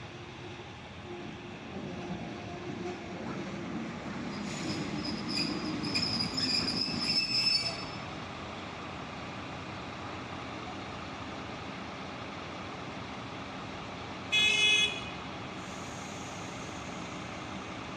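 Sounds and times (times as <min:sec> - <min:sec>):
train carriage rumbling: 0:00.0 - 0:09.6
train wheels squealing on rails: 0:02.4 - 0:08.2, 0:15.6 - 0:17.6.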